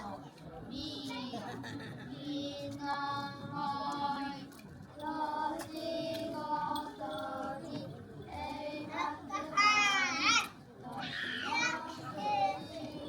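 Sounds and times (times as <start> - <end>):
high-pitched singing voices: 5.0 - 13.0.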